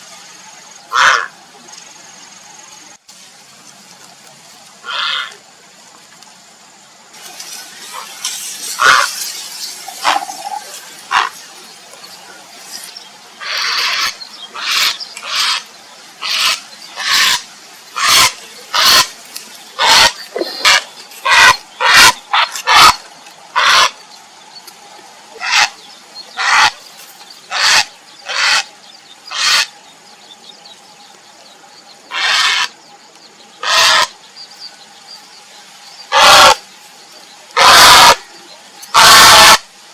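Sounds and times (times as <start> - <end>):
heron harsh calls: 0.9 - 1.3, 4.8 - 5.3, 8.8 - 9.1, 11.1 - 11.4, 13.4 - 15.6, 16.2 - 17.4, 18.0 - 19.1, 19.8 - 23.0, 23.6 - 24.0, 25.4 - 25.8, 26.4 - 26.8, 27.5 - 28.7, 29.3 - 29.7, 32.1 - 32.8, 33.6 - 34.2, 36.1 - 36.6, 37.6 - 38.2, 39.0 - 39.6.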